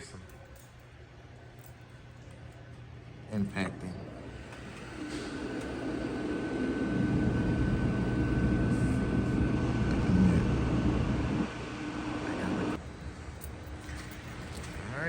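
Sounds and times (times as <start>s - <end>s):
mechanical drone with high whine: 3.3s - 15.0s.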